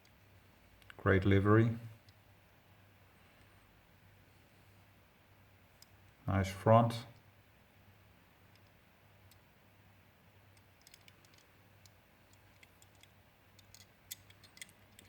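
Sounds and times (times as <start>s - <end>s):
light clicks of model car handling: 10.5s - 15.0s.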